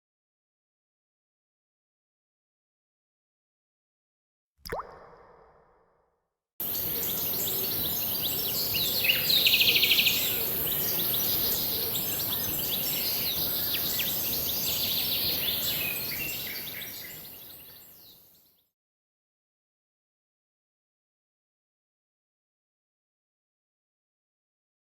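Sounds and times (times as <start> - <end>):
steady high hiss: 6.6 - 16.4
birds chirping and calling: 6.6 - 18.0.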